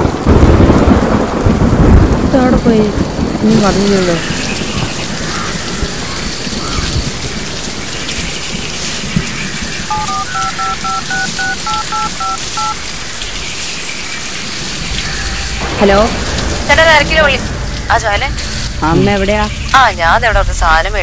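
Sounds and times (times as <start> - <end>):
heavy rain: 0.0 - 21.0
phone keypad dialling tones: 9.9 - 12.8.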